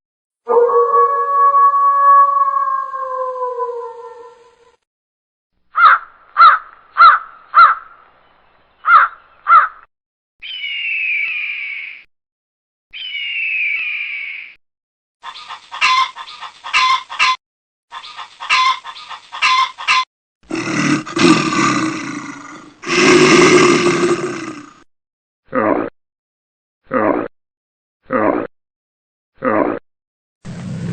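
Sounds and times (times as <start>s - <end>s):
short sharp caws: 5.8s - 7.8s, 8.9s - 9.8s
rough roar-like calls: 20.5s - 24.8s.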